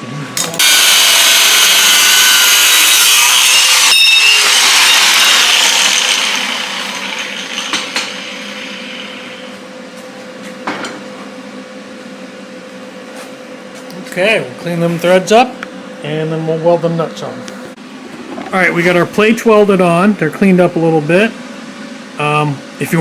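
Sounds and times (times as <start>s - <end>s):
power tool cutting steel: 0.4s - 9.5s.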